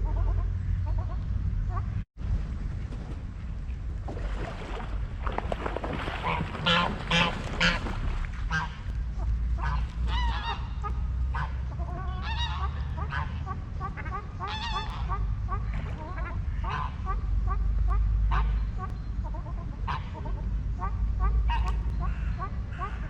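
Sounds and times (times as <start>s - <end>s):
steady low rumble: 0.0s - 23.0s
waterfowl calling: 5.6s - 23.0s.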